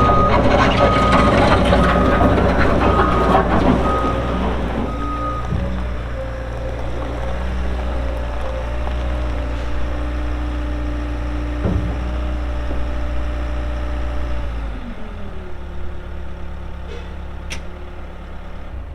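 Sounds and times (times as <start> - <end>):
diesel engine running: 0.0 - 18.9.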